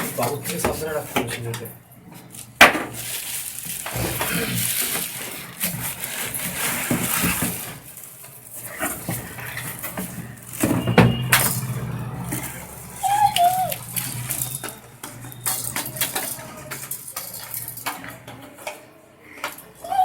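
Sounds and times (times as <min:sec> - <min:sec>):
packaging rustling: 0:02.8 - 0:18.0.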